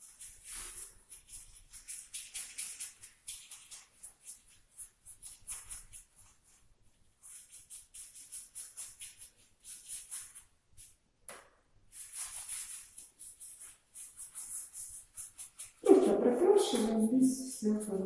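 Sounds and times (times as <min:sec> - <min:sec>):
brush scrubbing paint on tiles: 0:00.0 - 0:11.1, 0:11.8 - 0:18.0.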